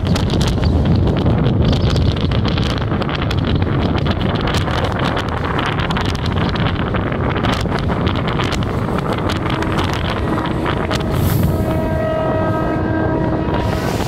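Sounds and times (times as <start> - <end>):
wind rushing over microphone: 0.0 - 14.0
train horn chord: 9.3 - 14.0.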